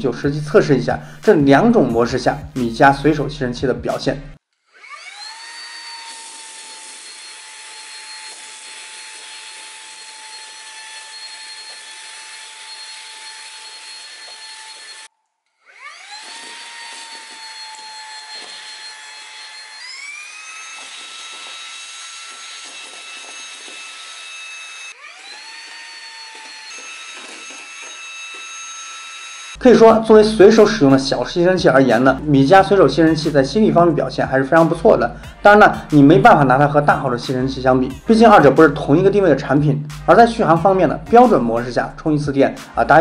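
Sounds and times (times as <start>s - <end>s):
handheld vacuum motor whine: 4.4s - 29.6s.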